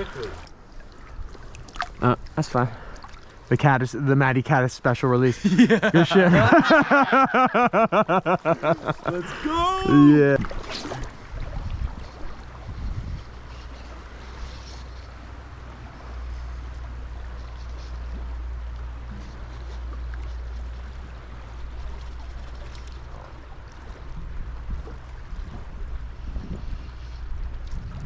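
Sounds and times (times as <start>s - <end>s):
wind buffeting microphone: 9.8s - 14.2s, 23.9s - 28.0s.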